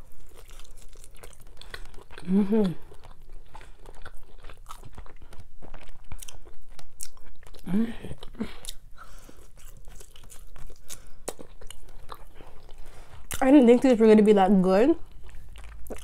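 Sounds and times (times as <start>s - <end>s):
chewing and biting ribs: 0.0s - 13.8s, 15.0s - 16.0s
person humming: 2.2s - 2.8s.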